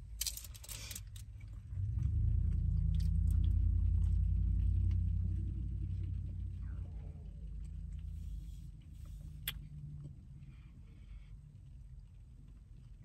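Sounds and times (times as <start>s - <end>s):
chewing with crunches: 0.0s - 13.0s
vehicle rumbling past: 1.6s - 10.9s.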